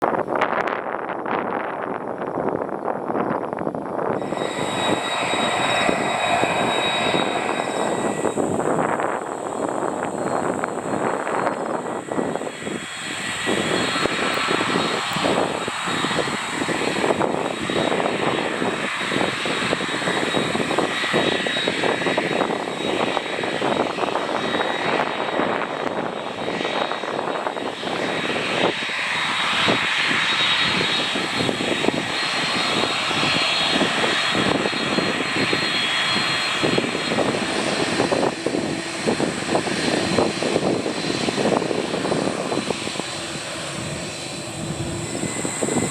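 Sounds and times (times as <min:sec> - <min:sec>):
high engine whine: 0:00.1 - 0:45.9
jet engines rushing: 0:00.1 - 0:45.9.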